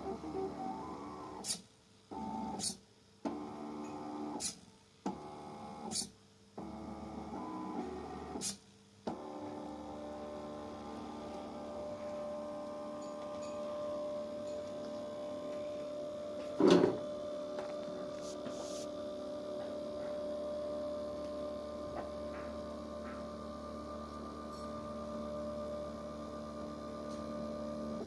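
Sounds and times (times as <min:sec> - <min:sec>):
plotter motors whining: 0:00.0 - 0:28.0.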